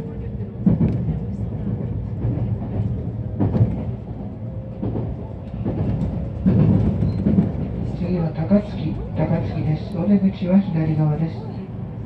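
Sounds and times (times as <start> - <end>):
train wheels rumbling on rails: 0.0 - 12.0
track clacks: 0.6 - 10.0.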